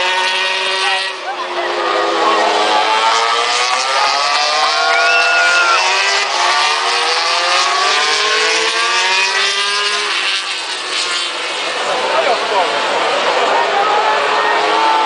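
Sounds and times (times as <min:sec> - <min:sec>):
racing motorcycles passing: 0:00.0 - 0:15.0.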